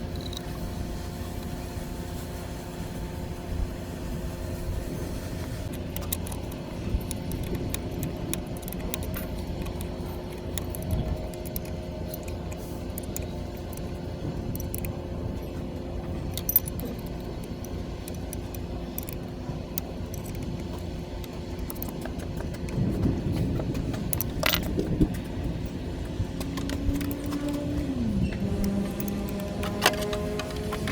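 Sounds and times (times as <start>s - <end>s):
metallic clinks and rattles: 0.0s - 0.7s, 5.6s - 30.9s
steady low hum: 0.0s - 30.9s.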